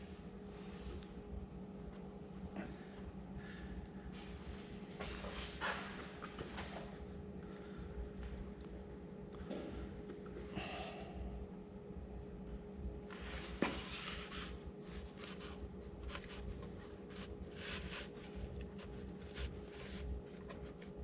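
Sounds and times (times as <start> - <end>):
steady low hum: 0.0 - 21.0
hands rubbing and scraping metal: 13.1 - 21.0.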